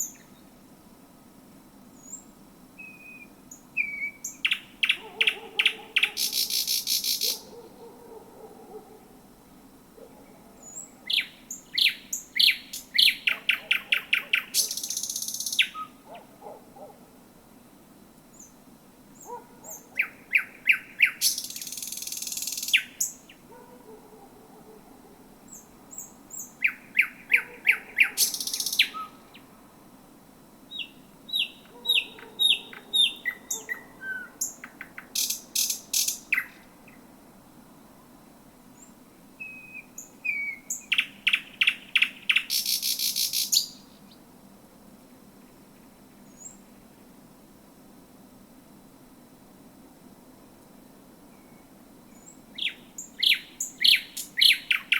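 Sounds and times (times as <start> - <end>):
nightingale singing: 0.0 - 0.6, 2.0 - 8.2, 10.0 - 16.6, 19.2 - 23.5, 25.5 - 29.5, 30.7 - 37.1, 38.8 - 44.2, 51.3 - 54.9.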